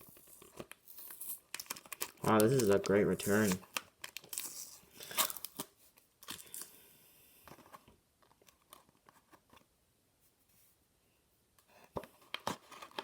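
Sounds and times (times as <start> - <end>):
cardboard box and tape rustling: 0.0 - 5.8.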